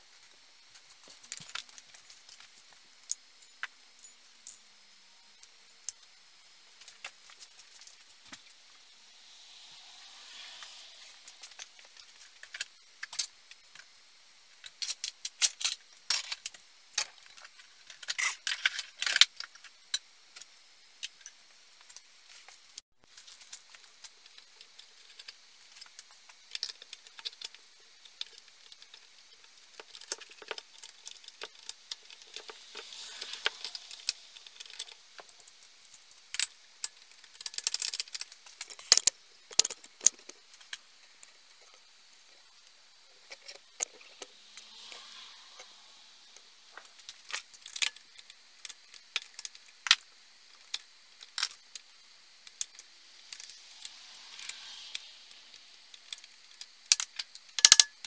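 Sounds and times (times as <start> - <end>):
metal parts and tools clinking: 28.2 - 40.8, 50.6 - 58.0.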